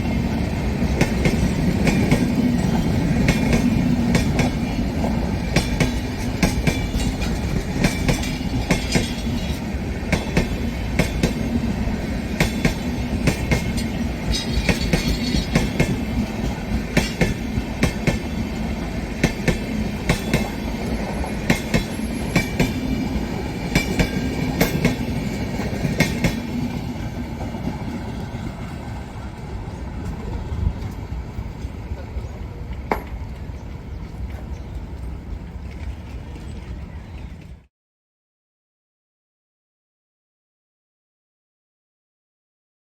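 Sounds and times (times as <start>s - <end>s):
train rumble: 0.0s - 37.7s
train wheels clacking: 0.1s - 31.8s.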